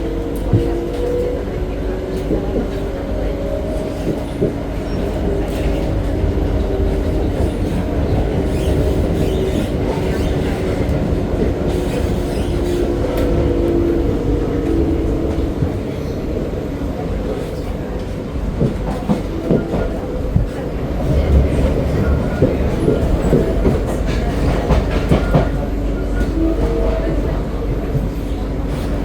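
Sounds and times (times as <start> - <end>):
low rumble of wheels on rail: 0.0 - 29.0
clacks over rail joints: 17.3 - 27.1.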